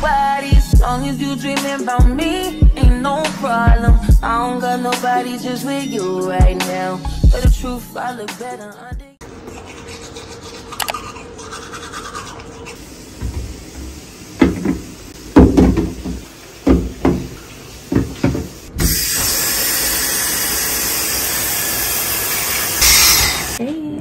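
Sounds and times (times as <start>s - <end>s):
shower water spraying: 12.8s - 23.6s.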